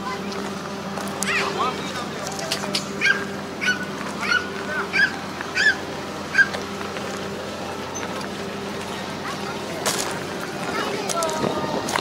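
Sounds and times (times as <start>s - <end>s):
low mechanical hum: 0.0s - 12.0s
bird calling: 1.2s - 6.6s.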